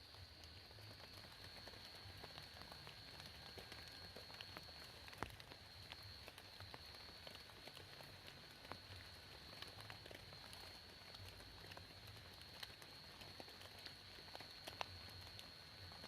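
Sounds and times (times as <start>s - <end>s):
rain drops tapping: 0.0s - 16.0s.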